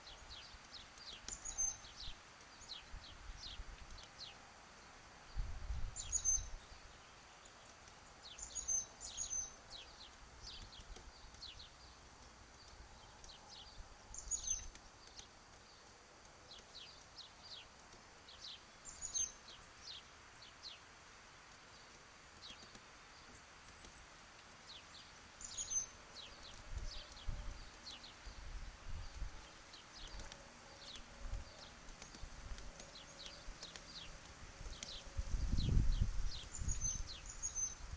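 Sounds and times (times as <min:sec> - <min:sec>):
woodpecker pecking taps: 0:03.7 - 0:04.3, 0:10.0 - 0:13.7, 0:14.3 - 0:18.6, 0:21.5 - 0:23.0.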